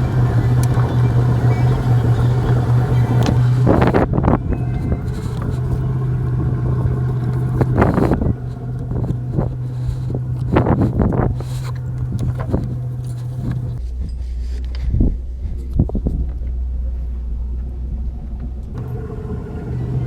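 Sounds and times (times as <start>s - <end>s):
boat motor humming: 0.0s - 13.8s, 18.7s - 20.0s.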